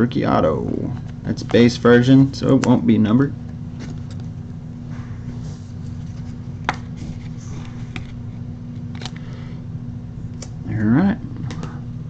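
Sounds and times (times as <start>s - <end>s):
steady low hum: 0.0s - 12.0s
cards being handled: 3.7s - 4.4s, 5.2s - 9.4s.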